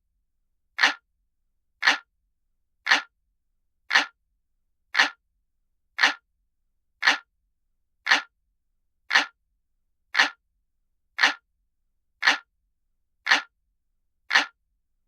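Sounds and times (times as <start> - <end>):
analog clock ticking: 0.8 - 1.0, 1.8 - 2.1, 2.9 - 3.1, 3.9 - 4.2, 5.0 - 5.2, 6.0 - 6.2, 7.0 - 7.3, 8.1 - 8.3, 9.1 - 9.4, 10.2 - 10.4, 11.2 - 11.4, 12.2 - 12.5, 13.3 - 13.5, 14.3 - 14.6.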